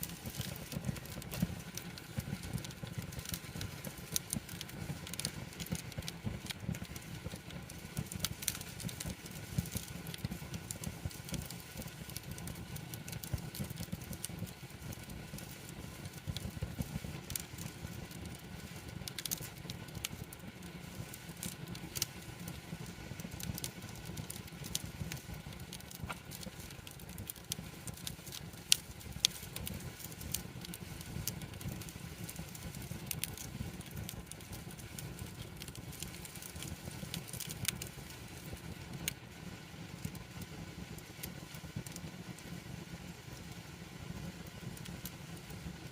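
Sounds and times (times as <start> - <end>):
campfire crackling and popping: 0.0 - 45.9.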